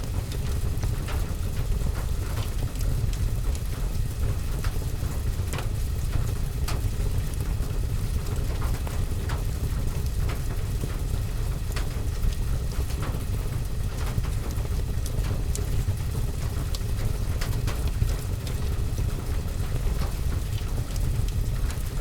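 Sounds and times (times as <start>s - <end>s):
fireplace fire crackling: 0.0s - 22.0s
rain on a window: 0.0s - 22.0s.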